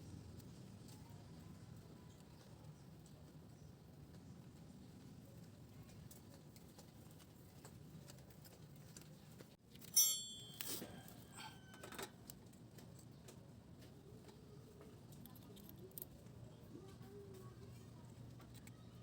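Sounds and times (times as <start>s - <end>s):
sharp metallic clink: 9.8s - 11.8s
metal tools clattering: 9.8s - 12.0s.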